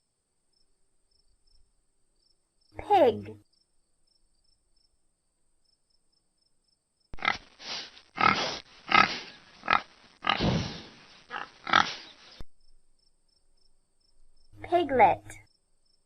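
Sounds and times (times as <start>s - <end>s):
pig grunting: 7.2s - 12.2s.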